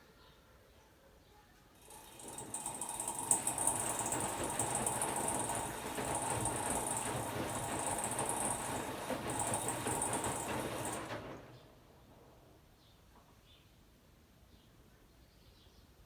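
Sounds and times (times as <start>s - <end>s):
washer-dryer drum turning: 1.8s - 11.7s.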